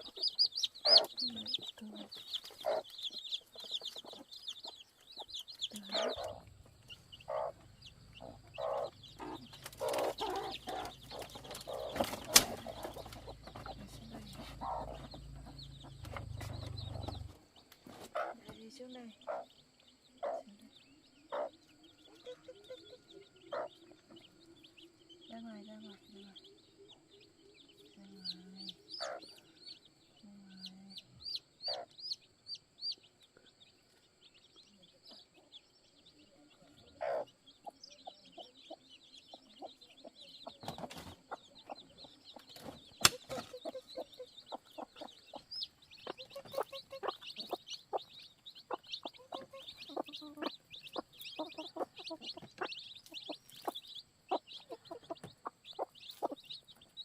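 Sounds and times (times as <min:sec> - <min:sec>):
hen clucking: 0:00.0 - 0:29.6, 0:30.2 - 0:33.0, 0:36.5 - 0:57.0
chicks peeping: 0:00.0 - 0:57.0.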